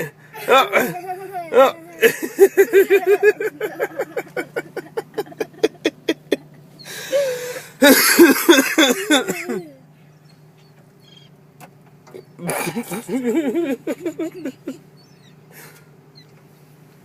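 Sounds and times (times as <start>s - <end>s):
man laughing hard: 0.0s - 9.7s, 12.4s - 14.9s
wheezing breaths: 6.8s - 7.8s, 15.5s - 16.0s.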